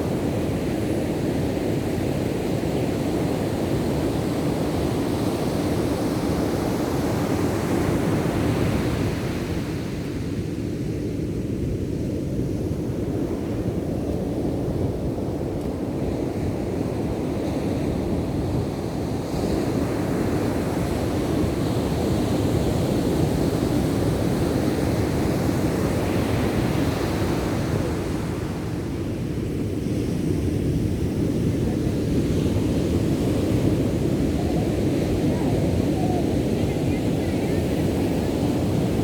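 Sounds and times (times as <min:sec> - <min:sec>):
wind buffeting microphone: 0:00.0 - 0:39.0
ocean waves breaking: 0:19.6 - 0:39.0.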